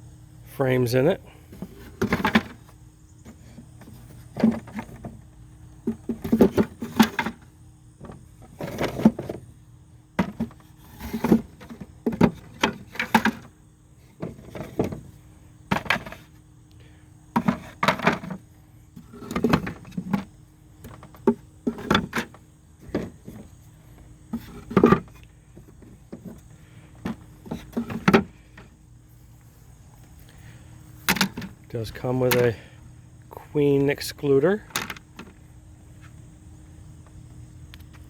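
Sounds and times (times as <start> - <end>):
wooden parts knocking: 10.2 - 13.5, 15.7 - 16.2, 17.4 - 18.4, 27.0 - 28.3.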